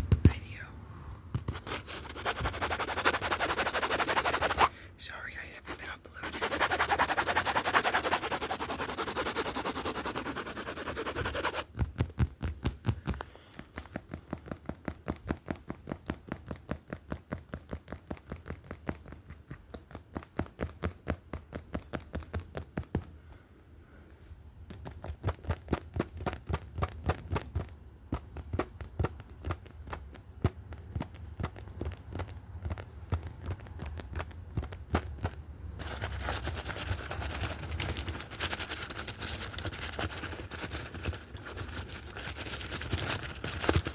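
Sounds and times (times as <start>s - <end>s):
rapid scratching: 1.4s - 4.7s, 5.6s - 11.7s, 35.2s - 43.9s.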